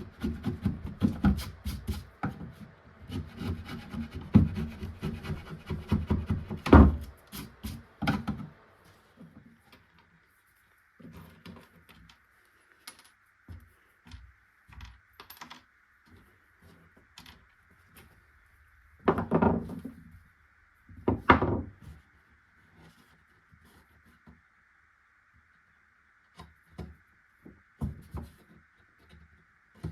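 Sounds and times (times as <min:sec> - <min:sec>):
rubbing on wood: 0:00.0 - 0:08.0
clicks and knocks of parts: 0:11.0 - 0:16.2.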